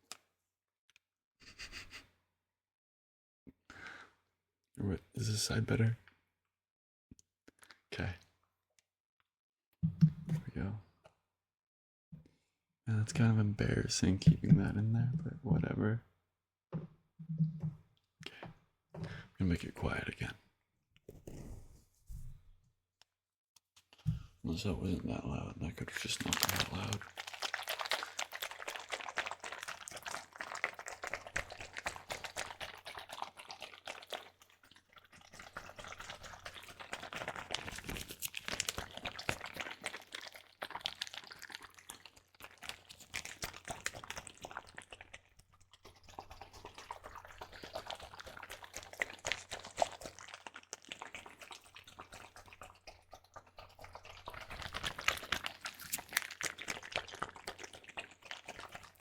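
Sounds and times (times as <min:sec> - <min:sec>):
water sloshing in plastic bag: 0:25.9 - 0:52.6, 0:53.9 - 0:59.0.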